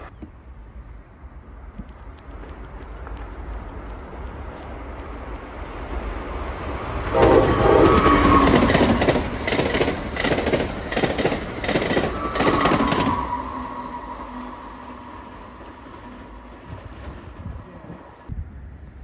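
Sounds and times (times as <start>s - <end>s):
train horn: 7.0s - 9.6s, 11.9s - 16.4s
train wheels clacking: 7.2s - 14.0s.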